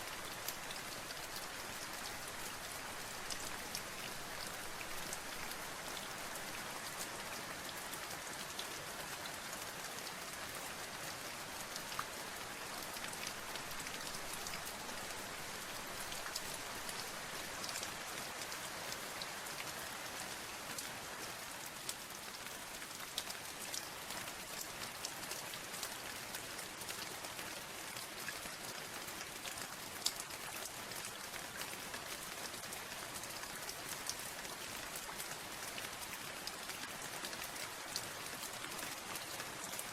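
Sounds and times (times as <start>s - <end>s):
steady rain hiss: 0.0s - 39.9s
raindrops ticking on surface: 11.6s - 39.9s.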